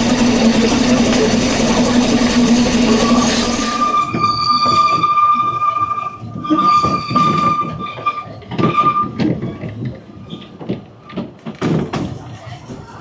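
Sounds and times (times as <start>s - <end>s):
moving train rumble: 0.0s - 4.2s
steam locomotive whistle: 0.0s - 9.2s.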